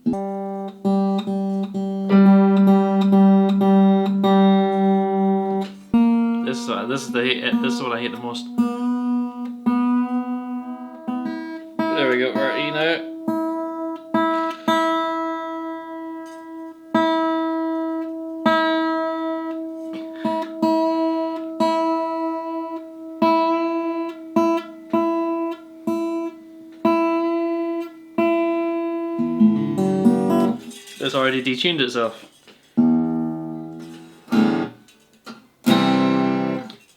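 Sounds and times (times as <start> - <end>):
acoustic guitar string plucked: 0.0 - 31.5, 32.7 - 36.8.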